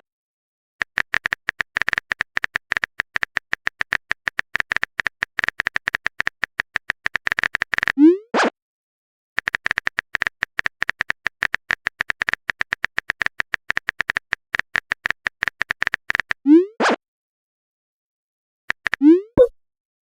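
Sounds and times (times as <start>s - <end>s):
phone keyboard typing clicks: 0.8s - 8.0s, 9.4s - 16.4s, 18.7s - 19.5s.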